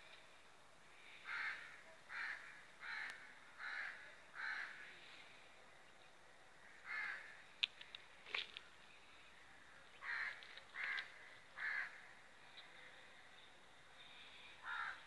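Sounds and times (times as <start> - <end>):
bird cawing: 1.0 - 4.9, 6.6 - 7.4, 10.0 - 12.2, 14.6 - 15.0.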